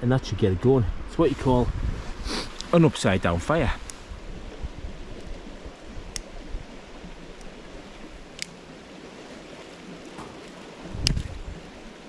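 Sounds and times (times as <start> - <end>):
water flowing over rocks: 1.3 - 4.2.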